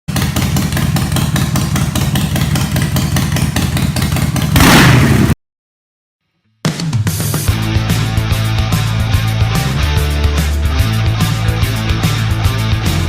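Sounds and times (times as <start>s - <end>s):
motorcycle engine idling and revving: 0.0s - 5.4s.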